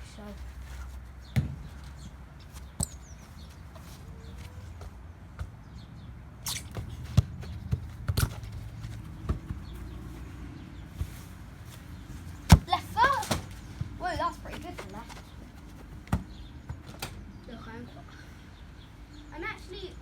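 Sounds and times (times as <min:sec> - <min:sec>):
football kicked and bouncing: 0:01.2 - 0:10.3, 0:12.4 - 0:17.2.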